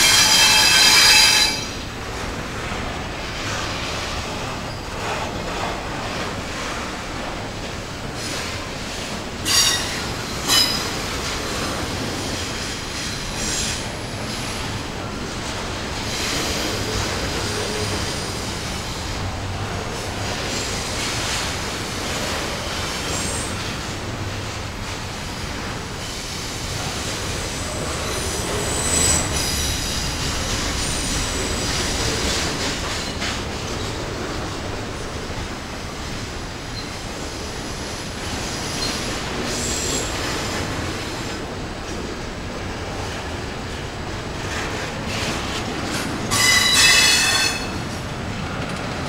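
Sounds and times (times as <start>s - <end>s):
high-pitched wheel squeal: 0.0s - 1.8s, 9.5s - 10.8s, 46.3s - 47.7s
train wheels rumbling on rail: 0.0s - 49.0s.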